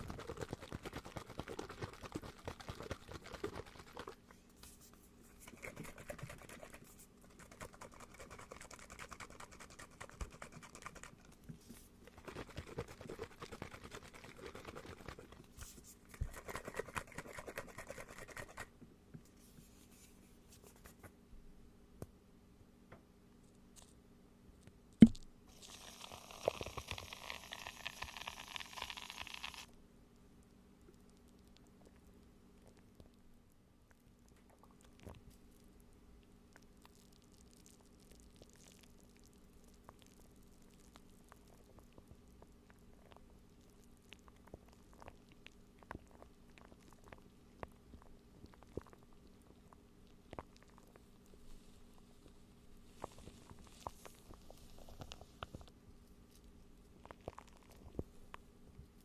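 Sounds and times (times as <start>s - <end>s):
scratching and crinkling object: 0.0s - 21.2s, 39.9s - 59.0s.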